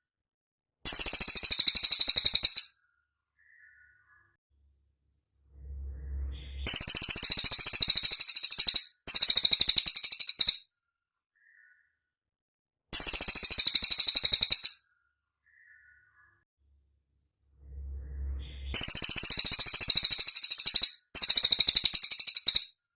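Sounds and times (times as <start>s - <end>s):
bird chattering trill: 0.9s - 2.7s, 13.0s - 14.8s, 18.5s - 22.7s
faint low rumble: 4.6s - 7.7s, 16.6s - 19.6s.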